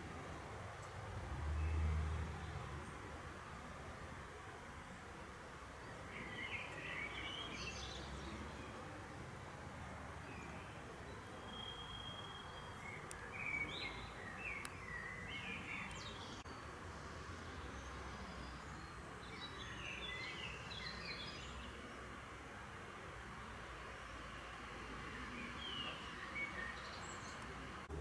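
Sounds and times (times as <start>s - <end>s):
songbirds chirping: 0.0s - 28.0s.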